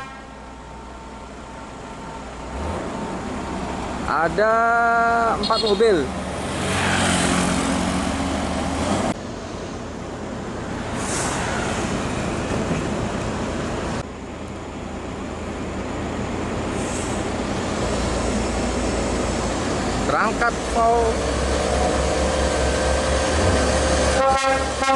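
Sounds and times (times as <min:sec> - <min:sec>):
diesel truck engine hum: 0:00.0 - 0:24.9
tyre and traffic noise: 0:00.0 - 0:24.9
short high hisses: 0:11.0 - 0:11.9, 0:16.7 - 0:17.2.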